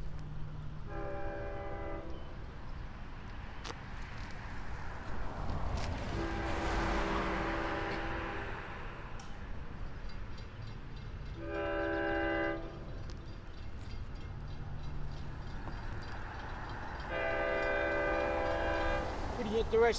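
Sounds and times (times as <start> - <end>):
moving train noise: 0.0 - 19.9
locomotive horn blasts: 0.9 - 2.4, 6.1 - 9.3, 11.4 - 13.1, 17.0 - 19.2.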